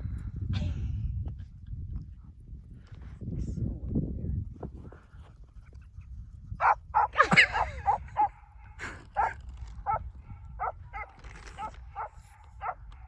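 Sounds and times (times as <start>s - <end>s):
dog barking and yipping: 6.6s - 8.4s, 9.2s - 10.0s, 10.6s - 12.8s.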